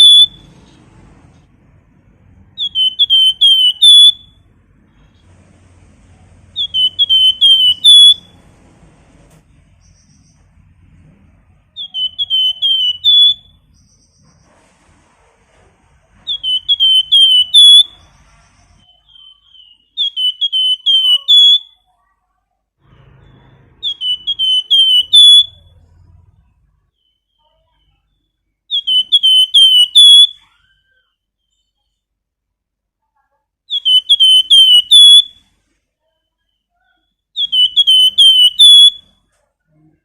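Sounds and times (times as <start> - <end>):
songbird whistling: 0.0 - 0.6, 2.5 - 4.4, 6.5 - 8.4, 11.7 - 14.4, 16.2 - 21.8, 23.2 - 25.8, 27.0 - 31.7, 33.7 - 35.5, 36.3 - 39.2.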